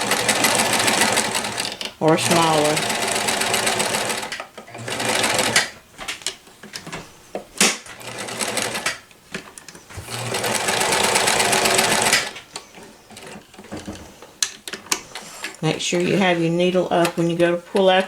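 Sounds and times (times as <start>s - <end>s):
sewing machine stitching: 0.0s - 5.8s, 7.9s - 9.0s, 10.0s - 14.2s.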